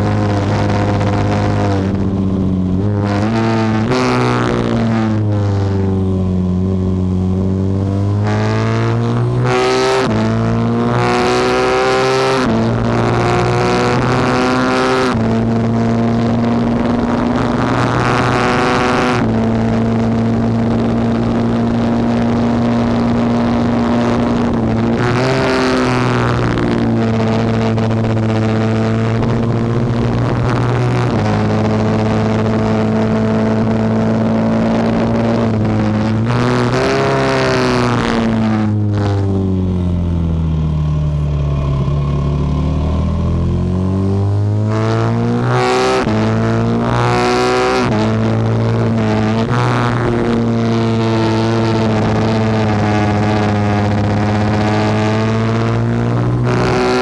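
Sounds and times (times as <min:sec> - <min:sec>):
racing motorcycle engine: 0:00.0 - 0:57.0.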